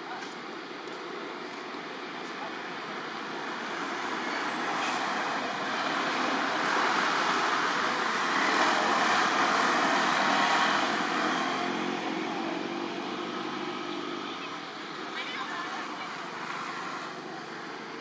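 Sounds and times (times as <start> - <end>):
vehicle passing by: 4.9 - 14.3.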